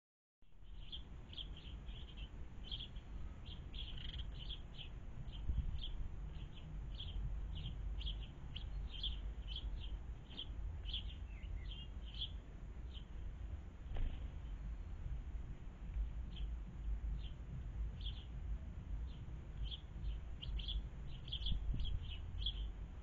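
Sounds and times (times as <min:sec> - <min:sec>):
constant low rumble: 0:00.4 - 0:23.0
small bird chirping: 0:00.6 - 0:13.1, 0:16.2 - 0:18.4, 0:19.0 - 0:22.8.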